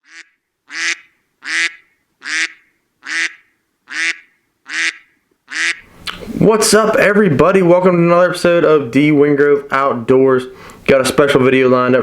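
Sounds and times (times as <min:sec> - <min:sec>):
duck quacks: 0:00.0 - 0:05.8.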